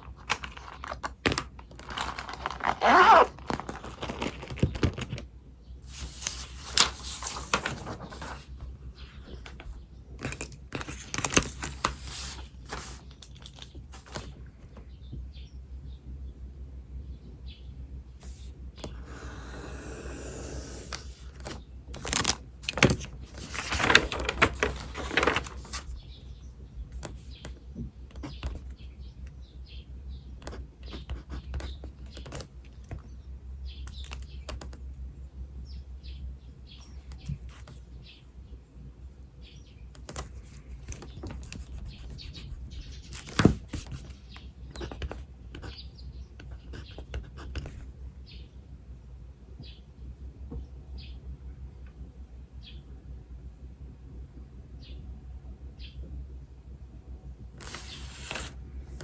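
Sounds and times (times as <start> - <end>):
pen writing on paper: 41.5 - 44.0.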